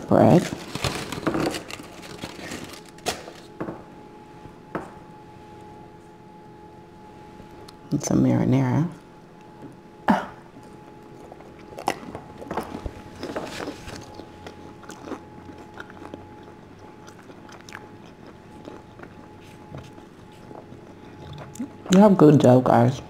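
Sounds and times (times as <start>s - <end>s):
person biting and chewing bread: 10.6s - 21.9s.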